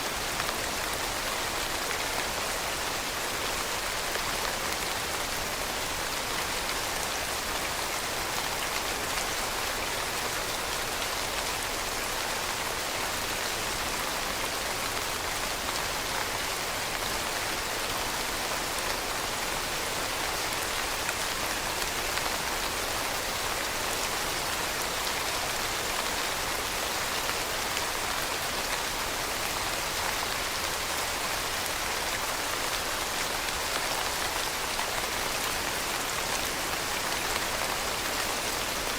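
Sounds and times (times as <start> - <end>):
rain pattering: 0.1 - 38.9.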